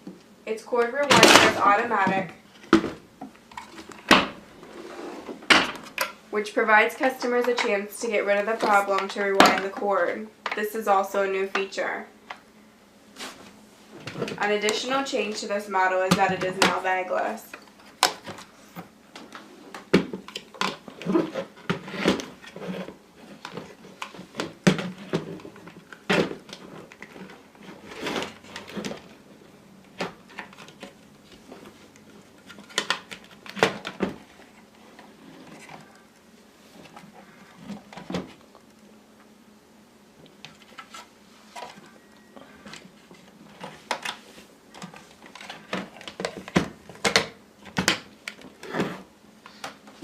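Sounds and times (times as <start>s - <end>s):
hard objects clicking and knocking: 42.6s - 48.7s.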